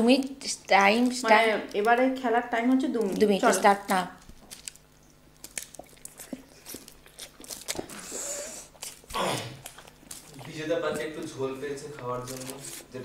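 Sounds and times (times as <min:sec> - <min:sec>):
people chewing food: 0:00.0 - 0:13.0
wet mouth sounds: 0:05.4 - 0:10.6.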